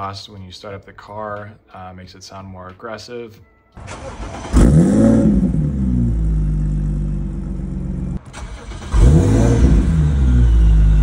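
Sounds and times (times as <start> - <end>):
car engine starting and idling: 3.8 - 11.0.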